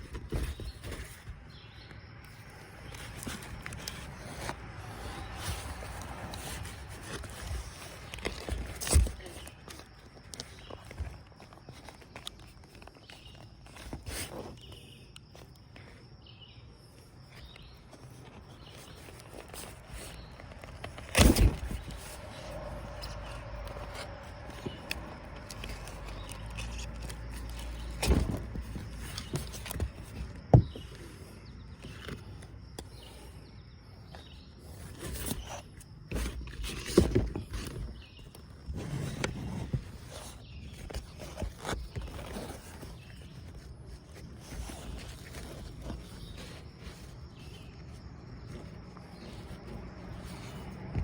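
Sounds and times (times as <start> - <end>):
sharp knocks and scrapes: 17.9 - 33.3.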